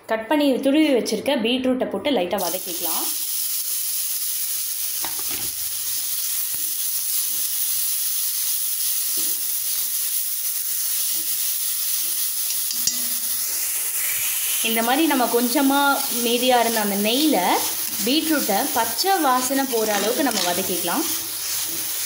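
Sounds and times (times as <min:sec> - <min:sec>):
beetroot sizzling in hot fat: 0:02.4 - 0:22.0
metal spatula scraping: 0:16.0 - 0:22.0.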